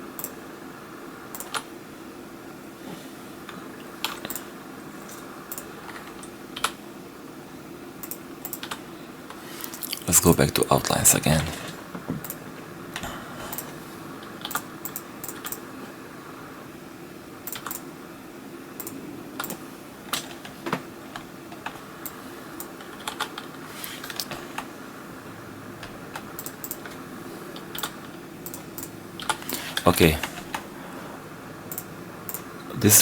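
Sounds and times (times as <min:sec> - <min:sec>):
steady low hum: 0:00.0 - 0:33.0
keyboard and mouse clicks: 0:00.2 - 0:00.4, 0:01.3 - 0:01.7, 0:04.0 - 0:04.5, 0:05.1 - 0:06.8, 0:08.0 - 0:08.8, 0:14.3 - 0:15.6, 0:17.4 - 0:17.9, 0:18.8 - 0:20.6, 0:26.1 - 0:27.0, 0:27.6 - 0:30.6, 0:31.7 - 0:32.5.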